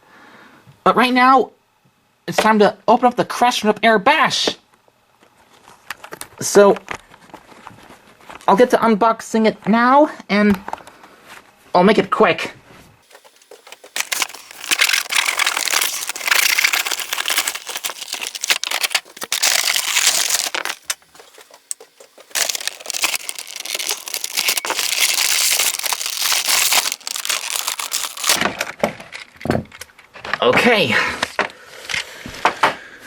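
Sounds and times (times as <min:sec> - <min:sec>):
packaging tearing and crinkling: 0:13.1 - 0:28.4.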